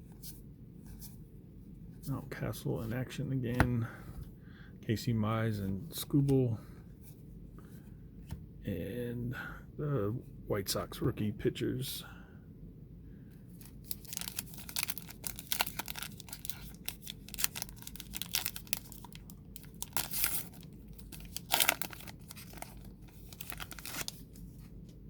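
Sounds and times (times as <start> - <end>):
wrapper tearing and crumpling: 13.8 - 24.4.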